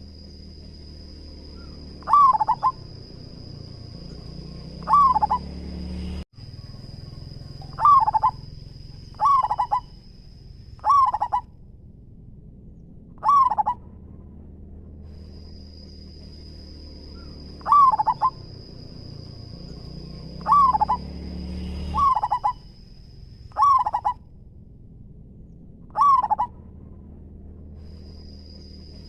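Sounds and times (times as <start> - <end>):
dove cooing: 1.6 - 5.5, 6.6 - 10.0, 10.8 - 11.5, 13.2 - 13.8, 17.1 - 21.1, 21.9 - 22.7, 23.5 - 24.2, 25.9 - 26.7.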